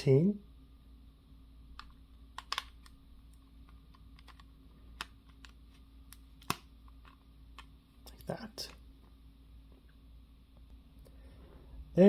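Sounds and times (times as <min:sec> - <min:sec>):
plastic puzzle pieces clicking: 0:01.8 - 0:03.0, 0:03.9 - 0:07.7.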